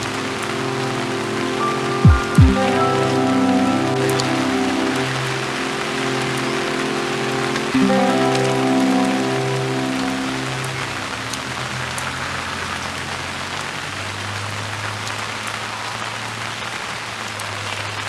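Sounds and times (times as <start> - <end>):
piano notes: 0.0 - 12.4
steady rain falling: 0.0 - 18.0.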